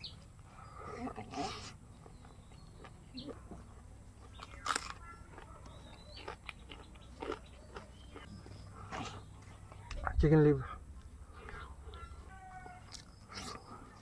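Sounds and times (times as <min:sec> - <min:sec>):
bird chirps: 0:00.0 - 0:10.2
chewing and lip smacks: 0:01.4 - 0:10.1, 0:11.0 - 0:14.0.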